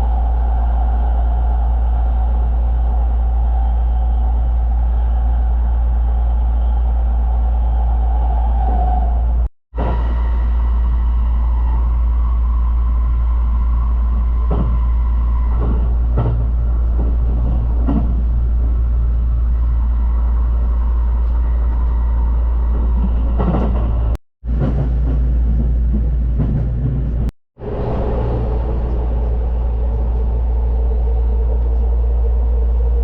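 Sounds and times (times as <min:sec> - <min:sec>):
electric train rumbling: 0:00.0 - 0:33.0
train knocks: 0:13.9 - 0:18.9, 0:22.6 - 0:30.3.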